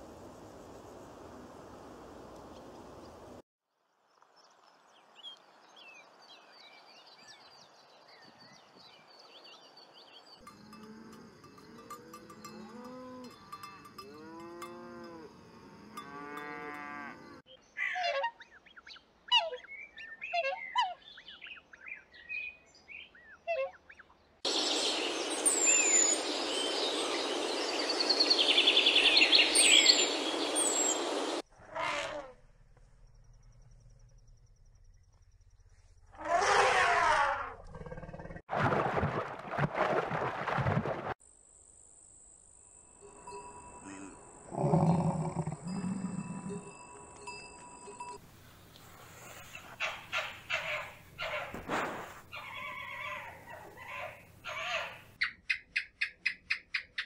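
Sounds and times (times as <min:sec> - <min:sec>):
cattle mooing: 0:14.0 - 0:17.4, 0:43.9 - 0:46.7
birds chirping: 0:17.2 - 0:31.4, 0:43.8 - 0:51.6.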